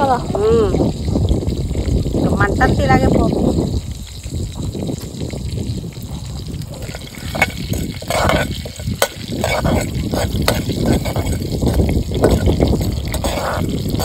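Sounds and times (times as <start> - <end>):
seeds sizzling in hot oil: 0.0 - 14.0
spoon stirring in a pan: 6.1 - 14.0.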